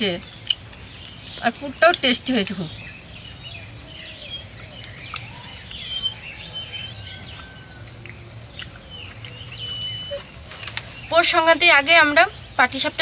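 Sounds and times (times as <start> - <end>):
birds chirping: 0.0 - 13.0
whistled bird notes: 2.7 - 11.4.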